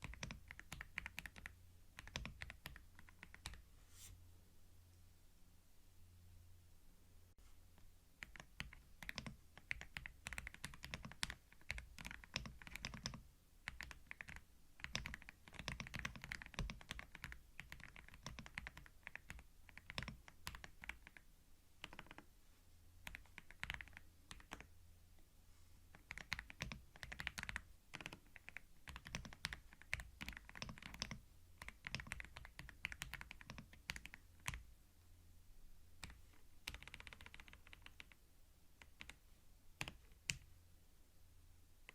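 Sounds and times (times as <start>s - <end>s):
typing on computer keyboard: 0.0s - 3.6s, 8.2s - 21.2s, 21.8s - 22.3s, 23.0s - 24.7s, 25.9s - 34.6s, 36.0s - 38.2s, 38.8s - 39.2s, 39.8s - 40.5s.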